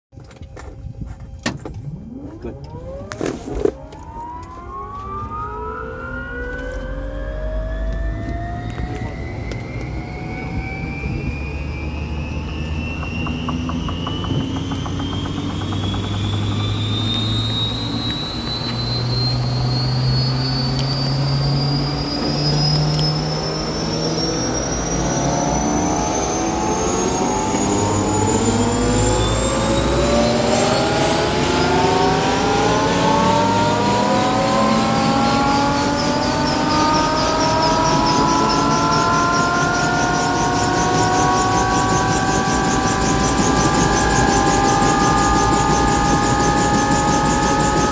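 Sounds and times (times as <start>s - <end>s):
low rising drivetrain tones: 0.1s - 47.9s
helicopter turbine whine rising: 0.3s - 47.9s.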